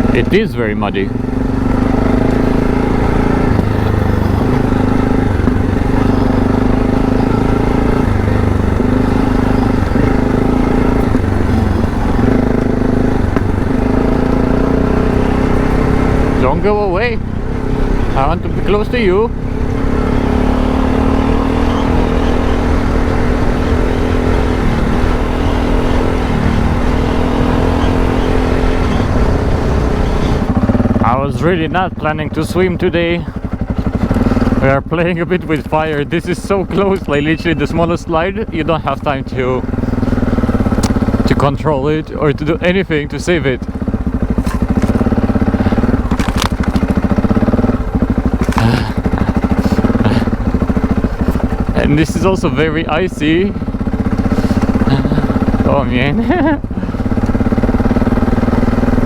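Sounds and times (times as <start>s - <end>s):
motorcycle engine running: 0.0s - 59.0s
wind and tyre rumble: 0.0s - 59.0s
motorcycle knocking over rough ground: 9.8s - 14.7s, 43.6s - 51.8s.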